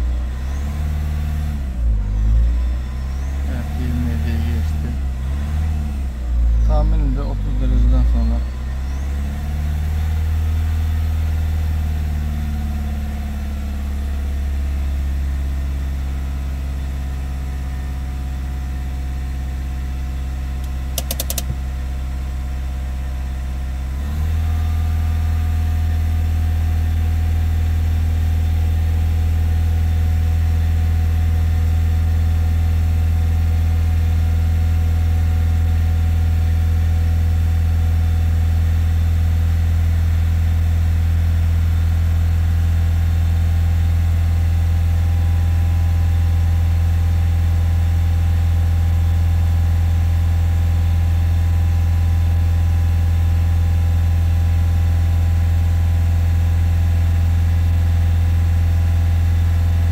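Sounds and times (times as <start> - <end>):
car engine fast idle: 20.0 - 22.2
clattering clicks: 20.6 - 21.6.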